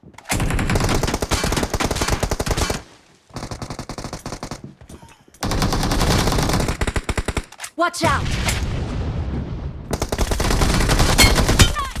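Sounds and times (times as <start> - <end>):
video game automatic gunfire: 0.3 - 2.8, 5.4 - 7.5, 9.9 - 12.0.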